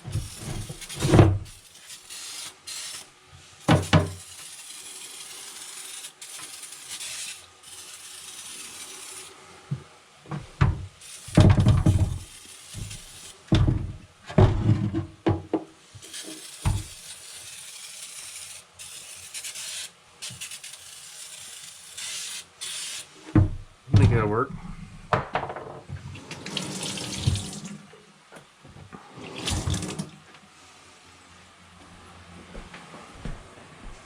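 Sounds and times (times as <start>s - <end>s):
rubbing and scraping metal: 0.0s - 9.4s, 16.0s - 23.0s
steady hiss: 0.0s - 9.7s, 10.9s - 13.5s, 15.7s - 23.3s.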